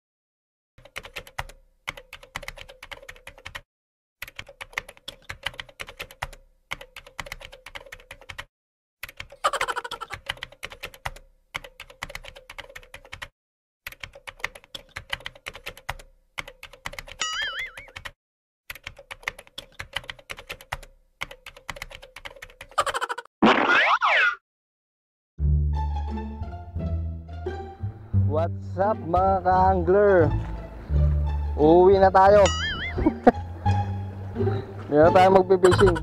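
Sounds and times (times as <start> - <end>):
keyboard typing clicks: 0.8 - 3.6, 4.2 - 13.3, 13.9 - 22.7
wavering pitched sound: 32.4 - 33.2
pitch-bending sound: 32.4 - 33.3.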